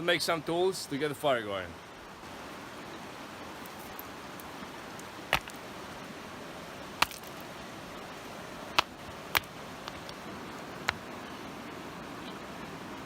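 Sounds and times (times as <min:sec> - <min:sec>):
steady background hiss: 0:00.0 - 0:13.0
sharp wooden knocks: 0:05.3 - 0:05.6, 0:07.0 - 0:07.3, 0:08.8 - 0:10.2.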